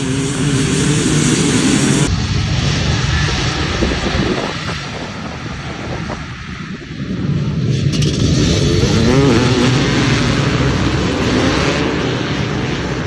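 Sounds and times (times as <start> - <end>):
motocross bike engines revving: 0.0 - 2.1, 7.2 - 13.0.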